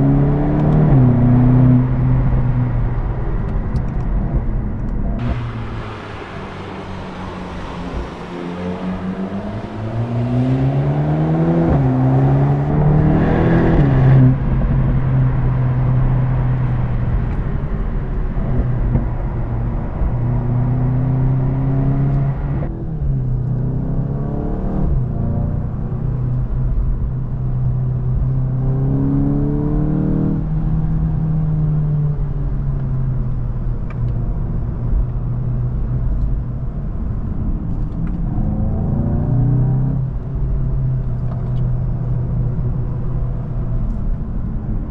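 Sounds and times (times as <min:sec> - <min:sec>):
car engine revving: 0:00.0 - 0:31.9.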